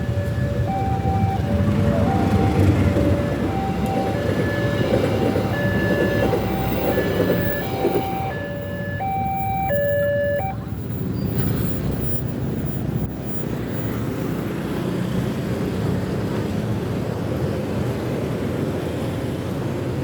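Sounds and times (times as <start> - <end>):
level crossing two-note alarm: 0.0 - 10.6
passing train rumble: 0.0 - 20.0.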